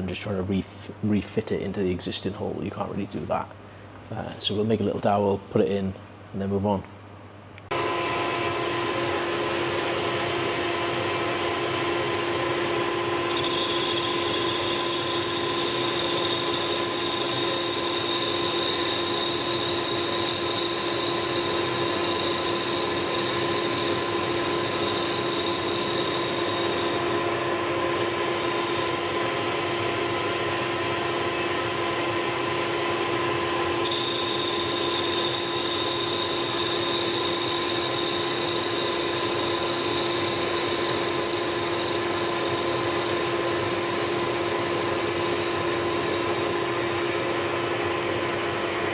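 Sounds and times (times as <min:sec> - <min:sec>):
power tool motor running: 0:13.3 - 0:29.2, 0:33.8 - 0:48.8.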